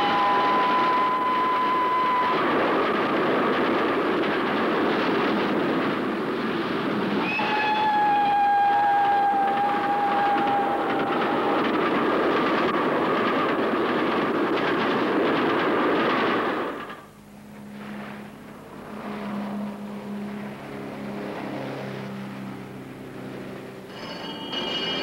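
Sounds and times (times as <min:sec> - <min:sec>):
train whistle: 0:00.0 - 0:02.6, 0:07.2 - 0:11.7, 0:17.4 - 0:25.0
train passing close by: 0:00.0 - 0:25.0
low steady hum: 0:16.9 - 0:24.3.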